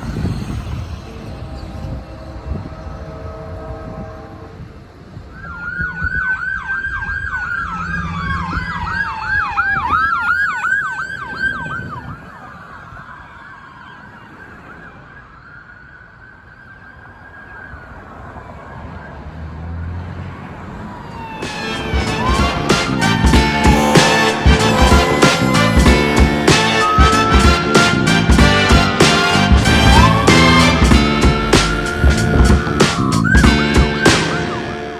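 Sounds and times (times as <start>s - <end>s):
wail siren: 1.4s - 19.3s, 20.8s - 34.9s
yelp siren: 1.4s - 19.4s, 20.9s - 34.9s
low engine rumble: 21.5s - 34.9s.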